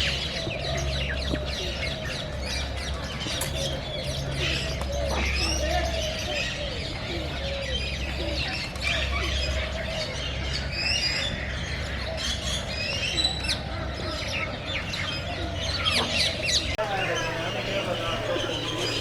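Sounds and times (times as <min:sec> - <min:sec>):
birds chirping and squawking: 0:16.0 - 0:19.0
low curved bird calls: 0:16.2 - 0:19.0.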